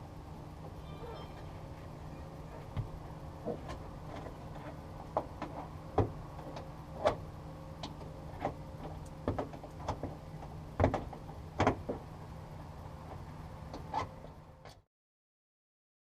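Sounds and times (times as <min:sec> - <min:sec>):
steady low hum: 0:00.0 - 0:14.9
irregular knocks and clicks: 0:07.8 - 0:12.0.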